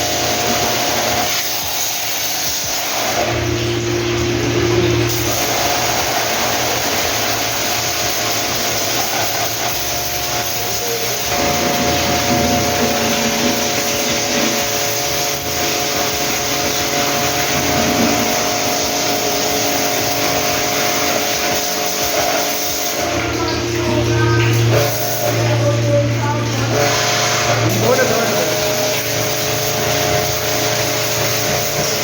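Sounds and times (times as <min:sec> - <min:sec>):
small electric motor running: 0:00.0 - 0:32.0.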